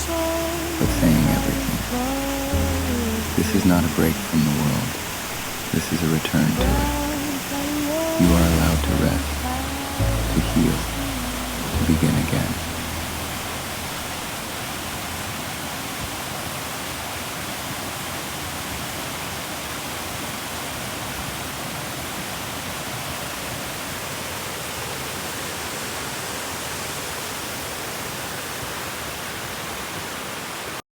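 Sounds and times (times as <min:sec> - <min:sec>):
water rushing: 0:00.0 - 0:15.5.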